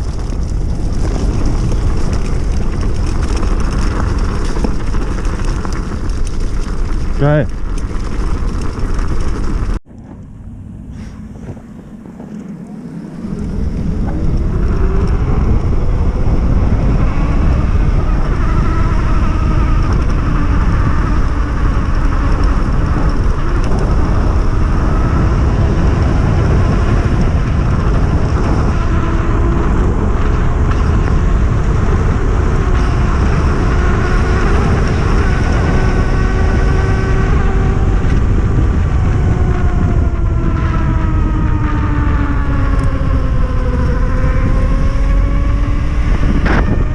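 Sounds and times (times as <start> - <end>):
electric motor whining: 0.0 - 46.9
wind rumble on microphone: 0.0 - 46.9.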